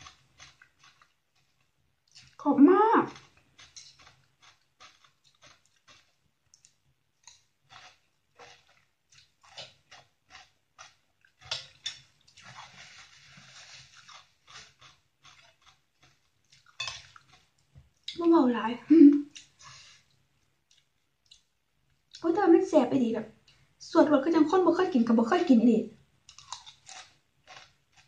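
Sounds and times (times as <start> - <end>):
person chewing crunchy food: 0.0 - 2.4, 3.1 - 18.2, 26.2 - 28.0.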